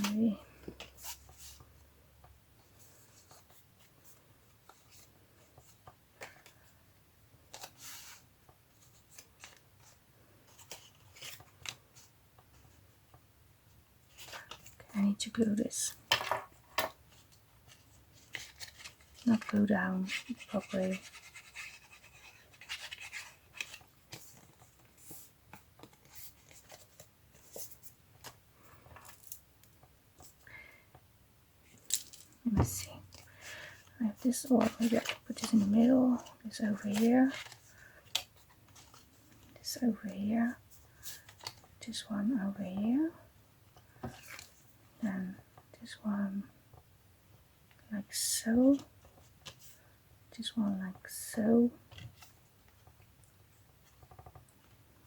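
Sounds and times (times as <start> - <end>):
paper shuffling on a table: 0.0 - 1.7, 17.1 - 29.3, 32.5 - 41.7
paper rustle: 17.1 - 29.3, 32.7 - 39.5.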